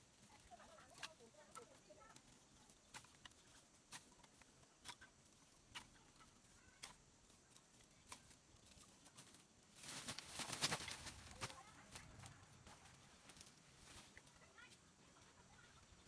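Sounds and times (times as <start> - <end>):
rustling noise: 0.0 - 16.0.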